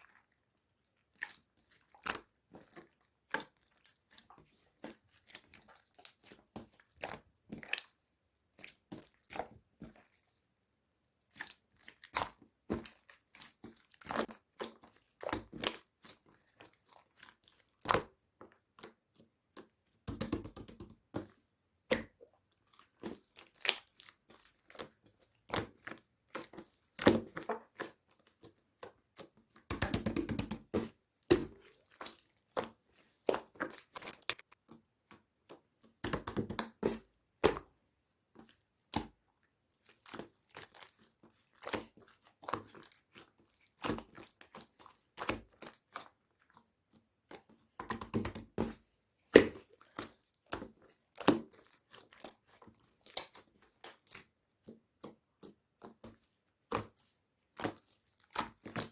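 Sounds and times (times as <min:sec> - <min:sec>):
slime squishing: 0:00.0 - 0:58.9
squishy crackling: 0:30.3 - 0:34.7.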